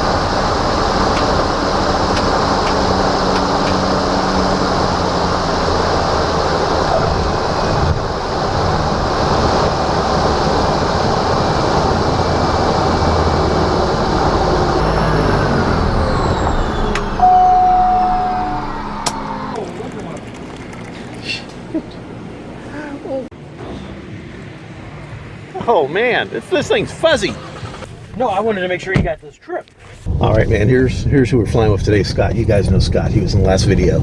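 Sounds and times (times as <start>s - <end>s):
turboprop engine running: 0.0s - 29.2s, 30.0s - 34.0s
short steady tone: 14.8s - 19.5s.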